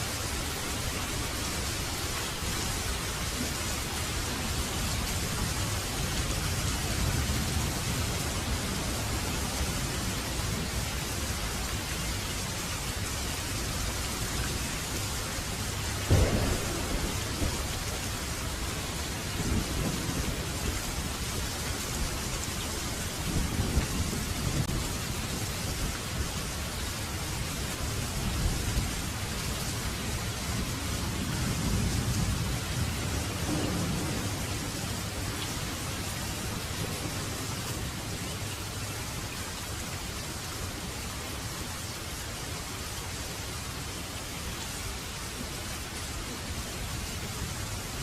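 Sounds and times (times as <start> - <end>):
heavy rain falling: 0.0 - 48.0
sharp thunderclap: 16.1 - 20.6, 33.4 - 35.2
thunder rumbling: 16.1 - 22.2, 30.6 - 35.9.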